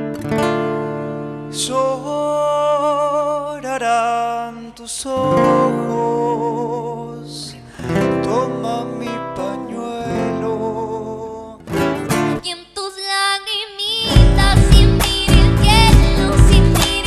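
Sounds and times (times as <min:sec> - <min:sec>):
acoustic guitars strummed and picked: 0:00.0 - 0:12.5, 0:14.0 - 0:17.0
person singing with vibrato: 0:12.3 - 0:17.0
bass and percussion: 0:14.2 - 0:17.0.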